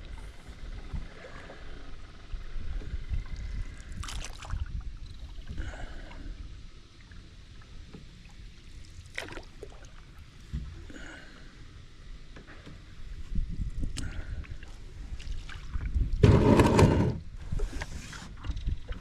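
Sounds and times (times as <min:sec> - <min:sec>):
paddle splashing in water: 0:04.0 - 0:04.6, 0:08.9 - 0:09.9.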